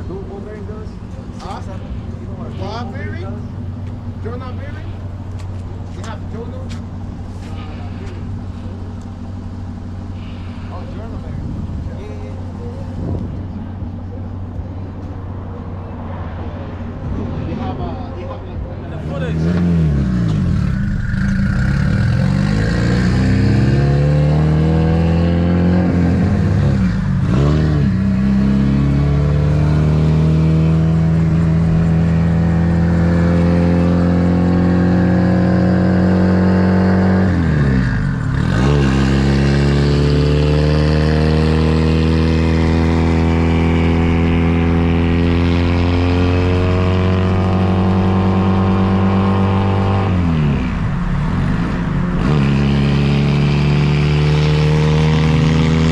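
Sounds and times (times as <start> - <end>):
car engine revving and shifting: 19.1 - 55.9.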